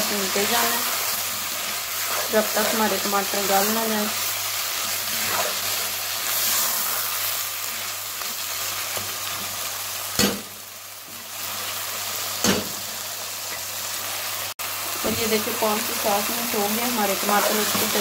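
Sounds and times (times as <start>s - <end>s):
meat sizzling in a wok: 0.0s - 18.0s.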